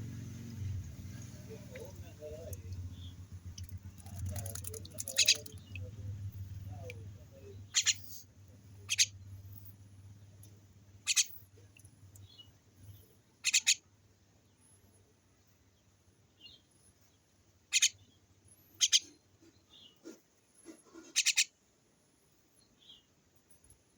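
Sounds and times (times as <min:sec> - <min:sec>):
faint low hum: 0:00.0 - 0:21.2
small bird chirping: 0:00.1 - 0:15.1, 0:15.8 - 0:21.6.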